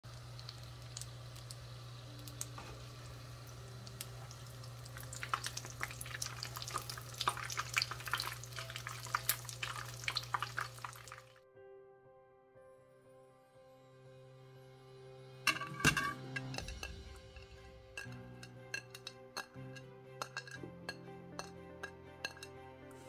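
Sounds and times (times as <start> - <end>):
frying sizzle with pops and crackles: 0.0 - 11.4.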